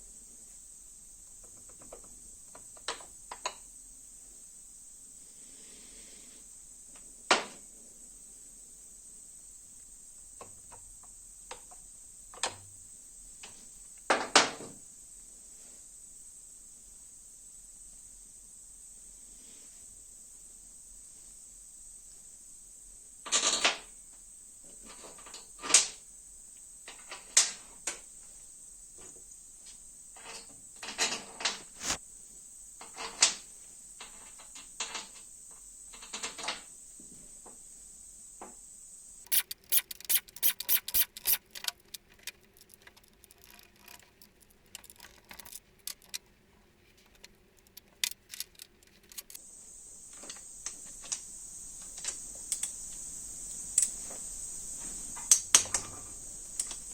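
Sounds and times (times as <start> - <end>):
hand tools clicking and clinking: 39.3 - 46.3, 46.9 - 49.4.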